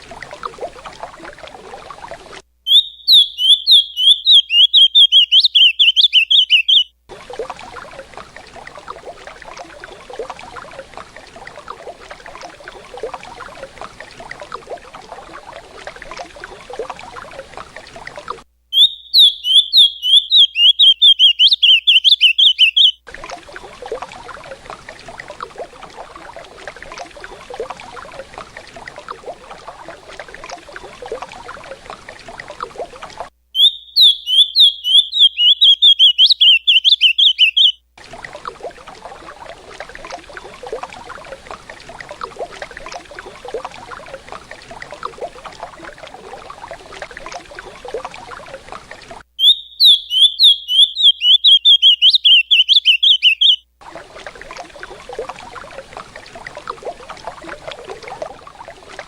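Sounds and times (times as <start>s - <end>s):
bird song high repeated notes: 2.7s - 6.9s, 18.7s - 23.0s, 33.6s - 37.8s, 49.4s - 53.7s.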